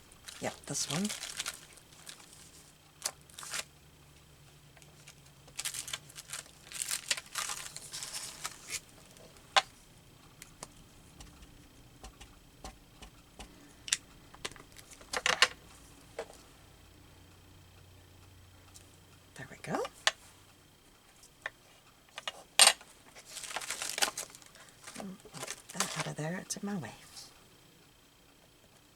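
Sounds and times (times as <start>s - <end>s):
paper rustling and crinkling: 0.2s - 3.7s, 4.8s - 9.4s, 23.1s - 26.1s
sharp taps and clicks: 10.6s - 14.5s.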